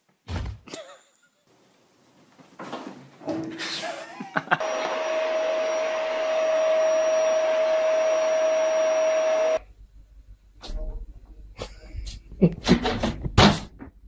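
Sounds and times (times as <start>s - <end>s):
electric motor whining: 4.6s - 9.6s.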